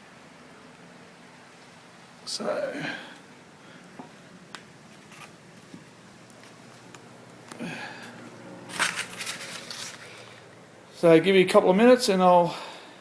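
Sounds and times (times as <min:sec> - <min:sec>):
rustling: 0:03.8 - 0:10.7
faint breath: 0:07.6 - 0:08.3, 0:12.5 - 0:13.0.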